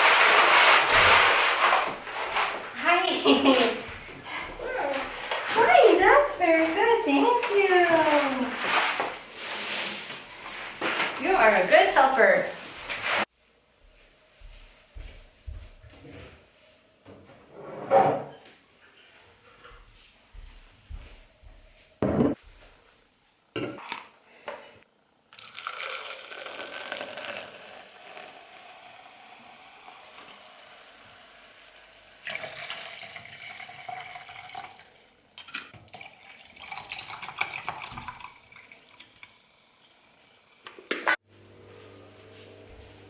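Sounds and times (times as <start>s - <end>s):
water running from a tap: 32.0s - 35.0s, 35.9s - 40.0s.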